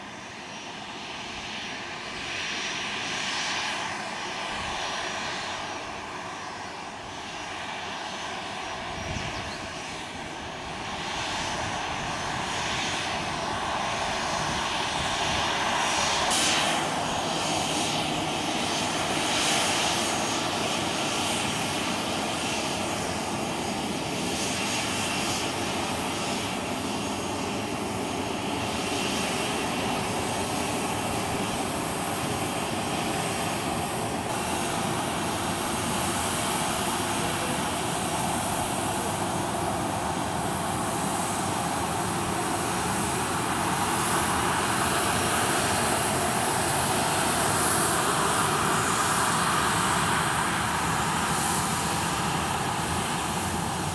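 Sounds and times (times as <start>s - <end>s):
jet engines running: 0.0s - 53.9s.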